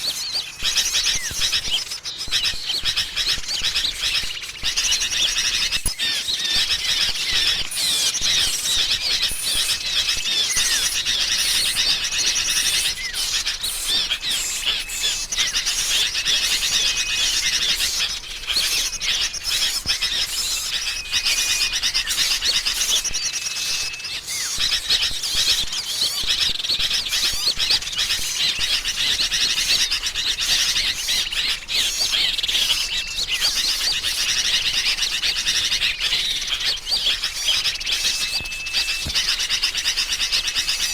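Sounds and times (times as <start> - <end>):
bulbuls chattering: 0.0 - 40.9
songbirds chirping and twittering: 0.0 - 40.9
short level whistles: 35.6 - 40.9.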